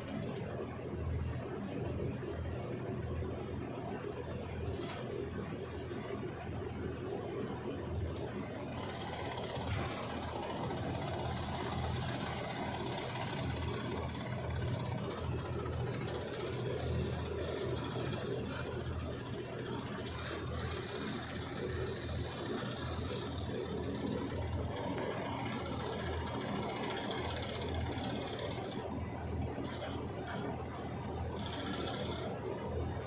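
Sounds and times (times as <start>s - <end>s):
excavator diesel engine running: 6.9s - 28.9s.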